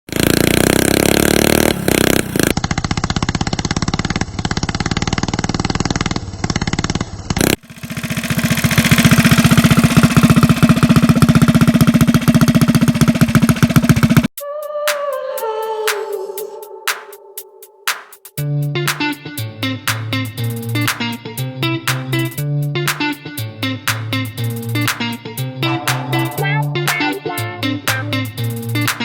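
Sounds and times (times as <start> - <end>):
mini bike engine running: 0.1 - 14.3.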